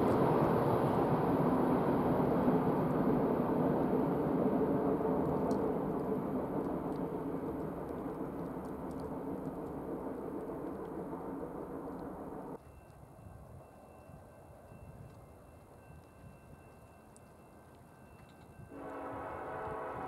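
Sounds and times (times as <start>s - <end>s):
freight train rumbling: 0.0s - 12.6s, 14.3s - 20.0s.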